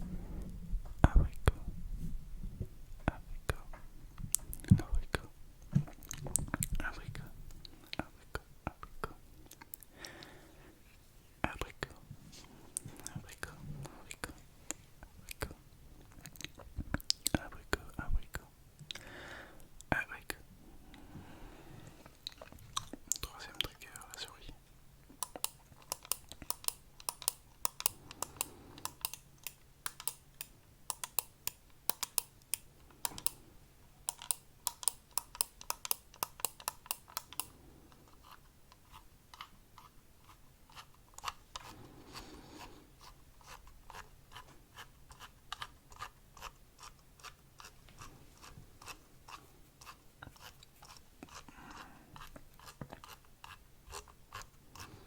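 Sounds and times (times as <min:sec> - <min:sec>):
small clicks and taps: 0:25.0 - 0:33.4, 0:34.0 - 0:38.0.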